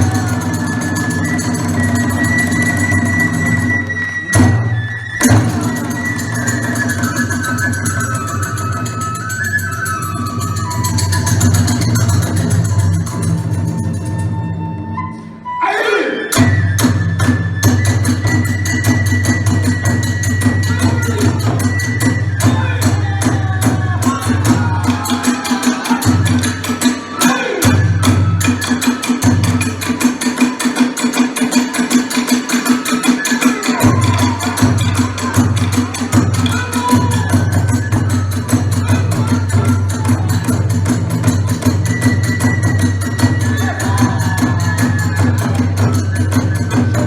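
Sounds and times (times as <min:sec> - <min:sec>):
hand cymbals: 0:00.0 - 0:04.5, 0:05.2 - 0:14.4, 0:16.4 - 0:47.0
drums beating: 0:00.0 - 0:14.4, 0:16.3 - 0:47.0
flute melody: 0:00.0 - 0:47.0
flute high note: 0:13.4 - 0:23.6.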